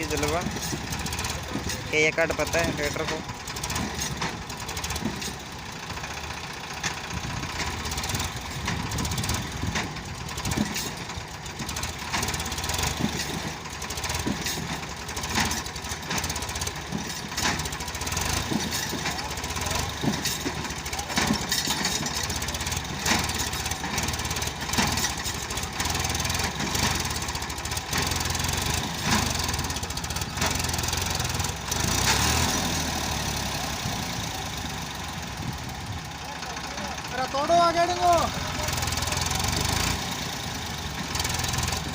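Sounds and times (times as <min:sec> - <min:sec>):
short knocks and clanks: 0:00.0 - 0:05.5, 0:06.7 - 0:32.4
diesel engines running: 0:00.0 - 0:41.9.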